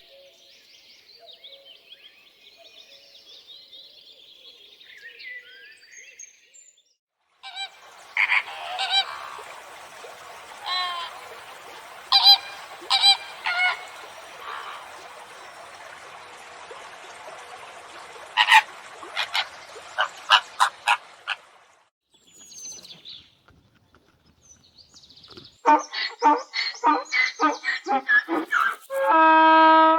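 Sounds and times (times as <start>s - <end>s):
birds calling: 7.4s - 15.7s, 18.4s - 21.4s, 22.3s - 29.1s.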